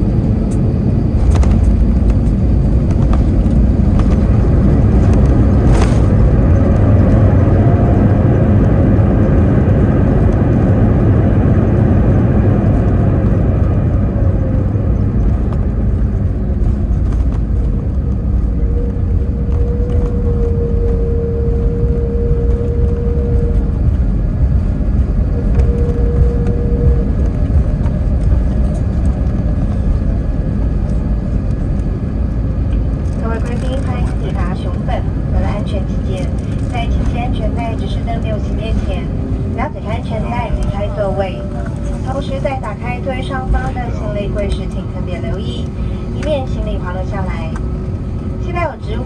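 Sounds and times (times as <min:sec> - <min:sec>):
aircraft engines and wheels rumbling: 0:00.0 - 0:49.0
falling whine: 0:00.2 - 0:31.8.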